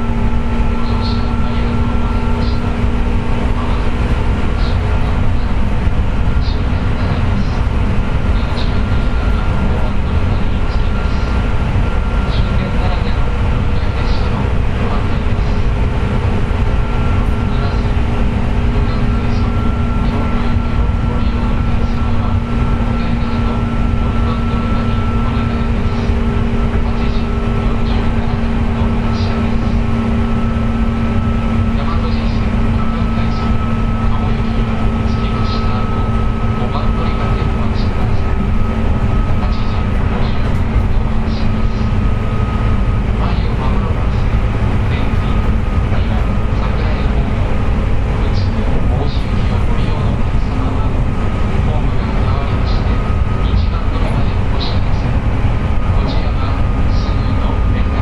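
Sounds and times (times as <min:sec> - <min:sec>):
steady whining tone: 0:00.0 - 0:58.0
wheels rumbling on rails: 0:00.0 - 0:58.0.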